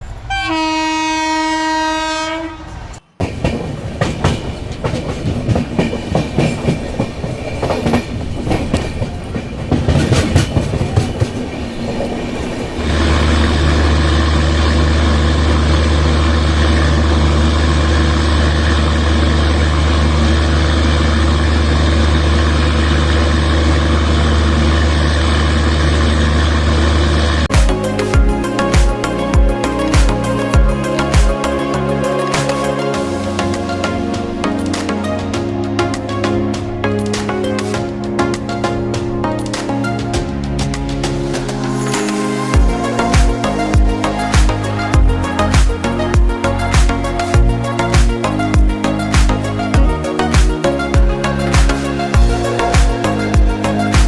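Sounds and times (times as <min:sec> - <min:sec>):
train horn: 0:00.3 - 0:03.0
train wheels clattering over rail joints: 0:03.2 - 0:13.9
steady low drone: 0:12.7 - 0:54.0.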